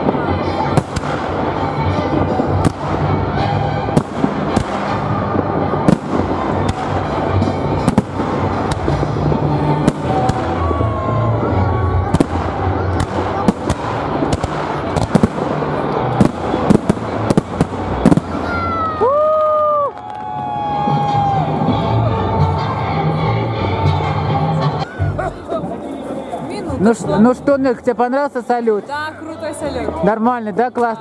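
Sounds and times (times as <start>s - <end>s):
fireworks bangs and crackles: 0.0s - 22.4s.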